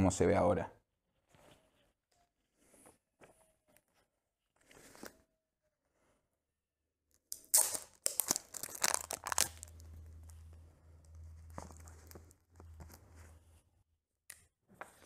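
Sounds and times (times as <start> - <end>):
tearing crackles: 7.4 - 13.1.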